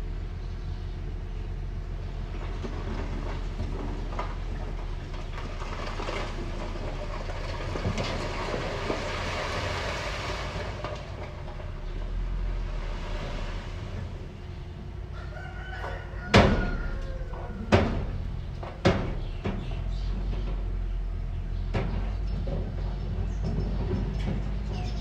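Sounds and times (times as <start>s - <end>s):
low engine rumble: 0.0s - 25.0s
rooster crowing: 15.1s - 18.1s
sharp knocks: 17.7s - 20.6s.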